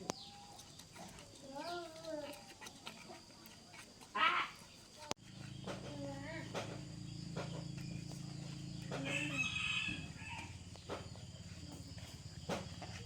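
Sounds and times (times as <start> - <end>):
rooster crowing: 8.9 - 10.8.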